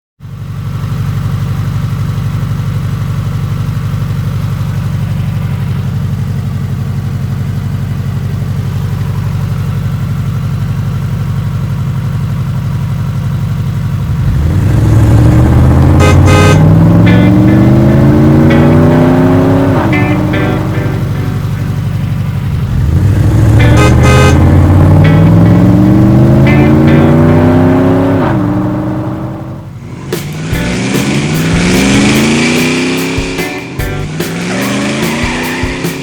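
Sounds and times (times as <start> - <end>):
car engine idling and revving: 0.2 - 36.0
engine pops: 29.9 - 36.0.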